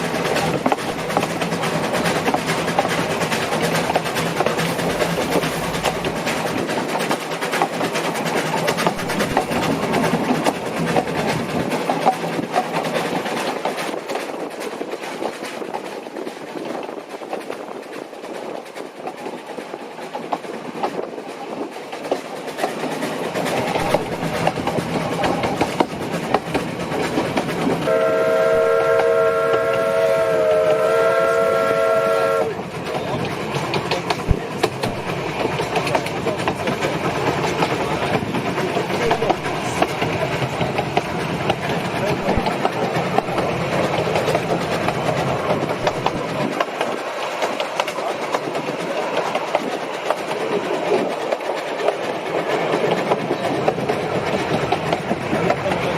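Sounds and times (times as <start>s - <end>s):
steam train running on rails: 0.0s - 55.9s
steam whistle chord: 27.9s - 32.5s.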